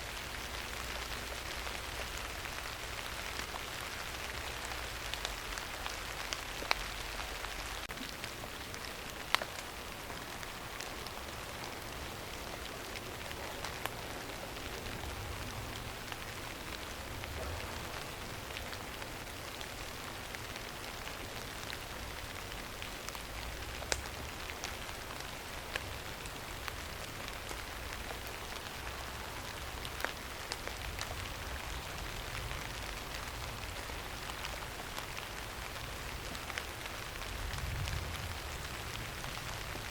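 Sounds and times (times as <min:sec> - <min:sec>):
steady rain on surface: 0:00.0 - 0:39.9.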